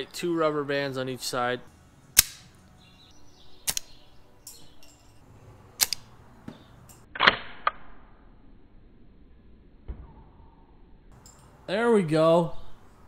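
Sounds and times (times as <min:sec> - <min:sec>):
rubber band crossbow snapping: 0:02.2 - 0:02.6, 0:03.7 - 0:04.0, 0:05.8 - 0:06.1.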